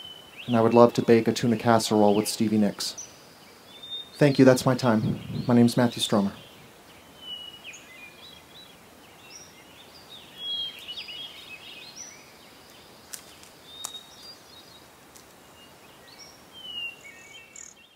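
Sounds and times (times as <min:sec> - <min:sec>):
woodland birds chirping: 0:00.0 - 0:17.9
sharp clicks: 0:13.1 - 0:14.0.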